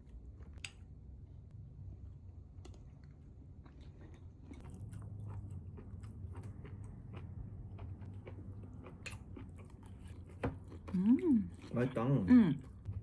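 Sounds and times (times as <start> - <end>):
low steady hum: 0.0 - 13.0
person chewing crunchy food: 2.9 - 13.0.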